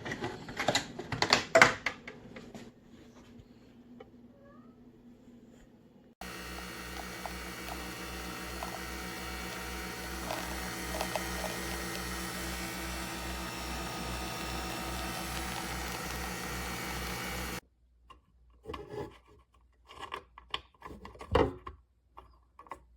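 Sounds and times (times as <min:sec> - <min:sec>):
coffee machine humming: 0:06.2 - 0:17.6.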